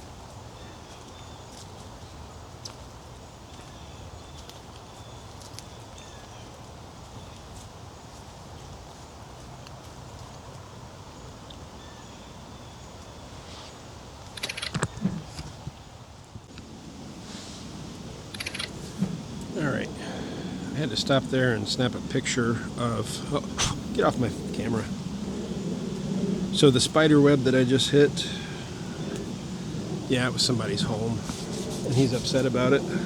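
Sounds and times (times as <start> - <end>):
close clicks and rustling: 14.2 - 15.8, 18.3 - 19.6.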